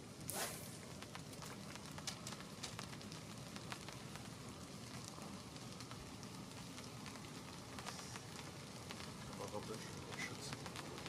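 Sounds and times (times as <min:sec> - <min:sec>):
light drizzle pattering: 0:00.0 - 0:11.0.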